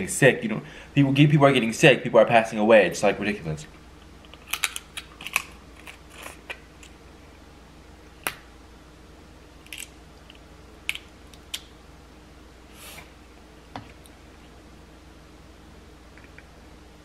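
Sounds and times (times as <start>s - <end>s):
crab shell cracking: 4.2s - 7.0s, 9.6s - 11.7s.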